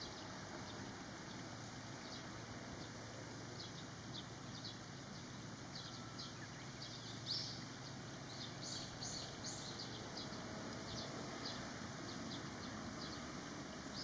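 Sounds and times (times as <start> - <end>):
outdoor background noise: 0.0 - 14.0
birds chirping: 3.6 - 14.0.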